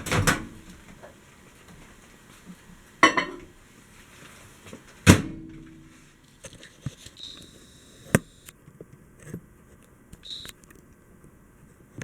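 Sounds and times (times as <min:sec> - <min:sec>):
microwave door banging shut: 0:00.0 - 0:00.6.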